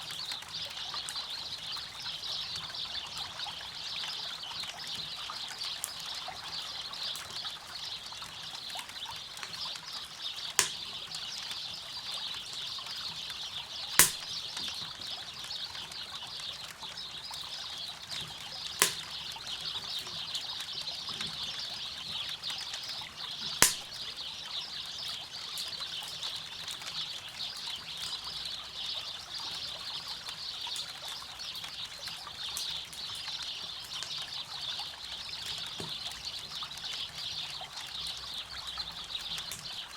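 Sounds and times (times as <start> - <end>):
campfire crackling and popping: 7.1 - 15.5, 16.8 - 21.2, 21.8 - 24.5.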